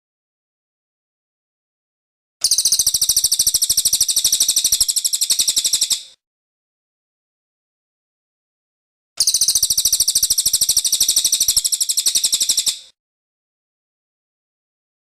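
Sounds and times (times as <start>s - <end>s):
bird high rapid trill: 2.4s - 6.2s, 9.2s - 13.0s.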